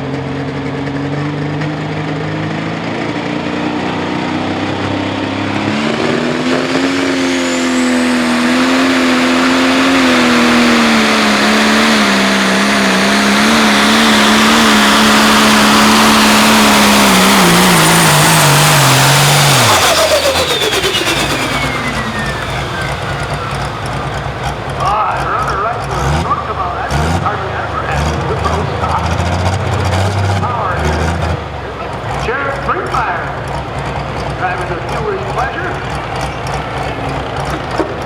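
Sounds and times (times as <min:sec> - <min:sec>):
tractor diesel engine at full throttle: 0:00.0 - 0:38.0
turbo whistle: 0:05.8 - 0:16.3.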